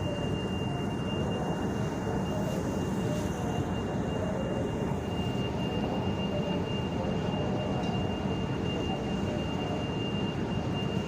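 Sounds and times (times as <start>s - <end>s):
high-pitched whine: 0.0s - 11.0s.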